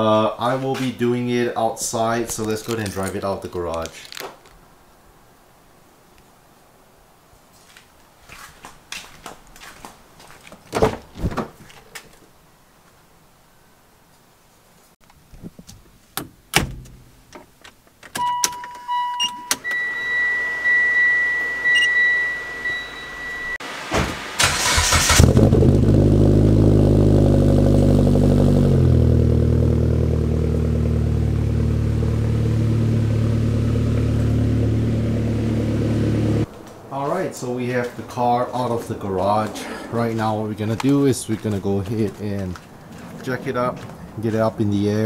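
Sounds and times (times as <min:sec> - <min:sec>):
door clicks: 0:15.7 - 0:19.7
electronic warning chimes: 0:18.2 - 0:23.6
car engine idling: 0:19.8 - 0:36.5
car engine cranking and starting: 0:23.7 - 0:36.5.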